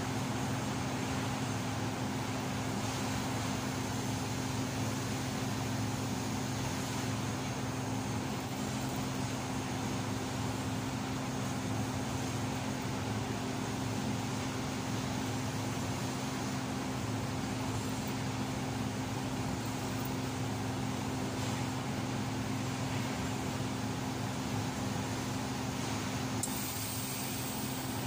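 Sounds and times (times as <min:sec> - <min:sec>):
welder humming and hissing: 0:24.7 - 0:28.0.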